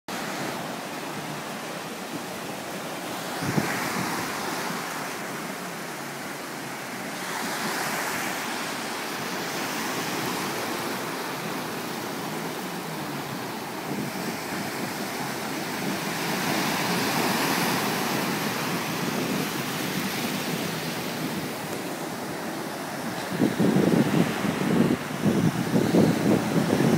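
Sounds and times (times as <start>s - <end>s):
sea surf washing: 0.1s - 26.9s
wind buffeting microphone: 0.6s - 6.0s, 8.8s - 26.9s.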